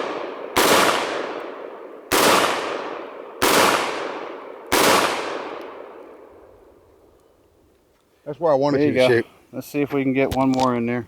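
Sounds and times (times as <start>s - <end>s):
shotgun shots echoing: 0.0s - 6.4s.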